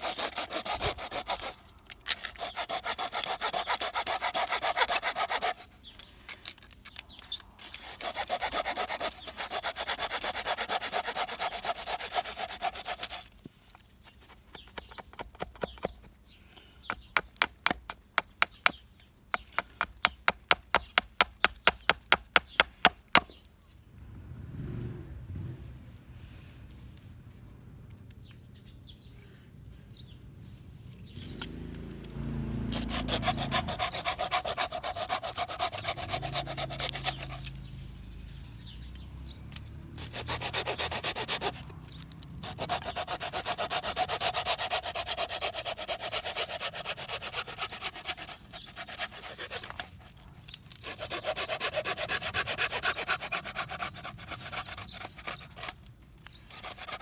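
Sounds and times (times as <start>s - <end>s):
hand saw rasping through wood: 0.0s - 5.9s, 7.6s - 13.3s, 19.4s - 23.3s, 32.5s - 37.8s, 39.9s - 55.8s, 56.4s - 57.0s.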